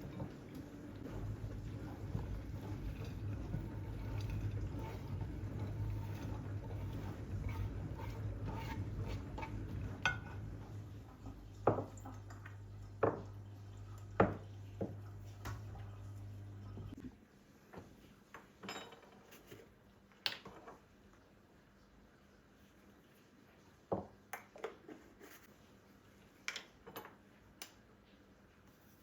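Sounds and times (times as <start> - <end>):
dishes and utensils clinking: 0.0 - 10.7, 18.4 - 19.5
steady low hum: 0.0 - 17.0.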